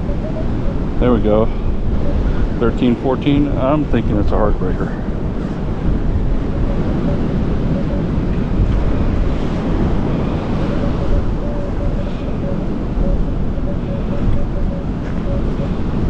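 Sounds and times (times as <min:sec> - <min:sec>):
waves breaking: 0:00.0 - 0:16.0
wind buffeting microphone: 0:00.0 - 0:16.0
metal detector tone pulses: 0:10.1 - 0:16.0.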